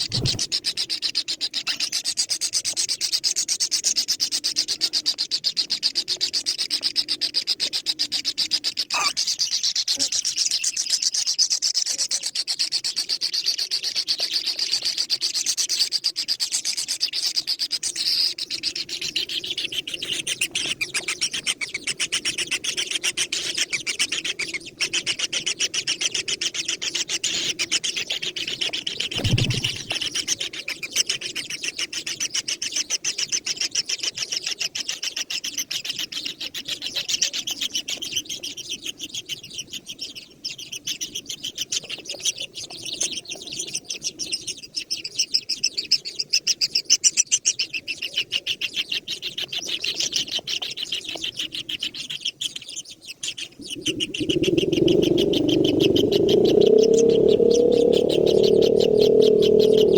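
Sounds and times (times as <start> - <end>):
birds chattering: 0.0 - 2.2, 3.4 - 59.9
bird cooing: 8.9 - 9.2, 29.1 - 30.4, 53.6 - 59.9
low thump: 29.2 - 30.0.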